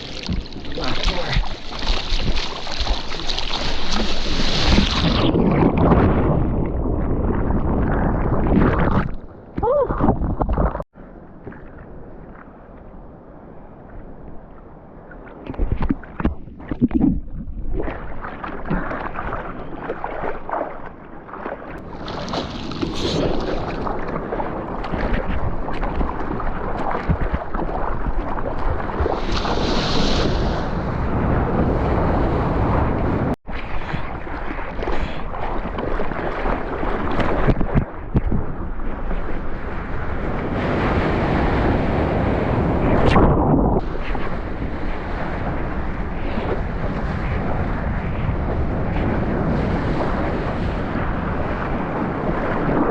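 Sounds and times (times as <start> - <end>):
seawater rushing and splashing: 0.0 - 10.8, 15.1 - 52.9
wind buffeting microphone: 0.0 - 18.0, 21.8 - 52.9.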